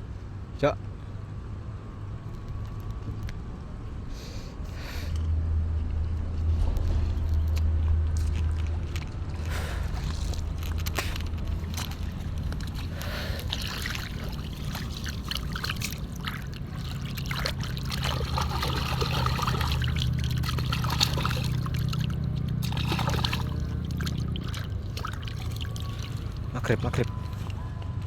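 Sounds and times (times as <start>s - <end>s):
steady low hum: 0.0s - 28.0s
water trickling and splashing: 9.3s - 27.6s.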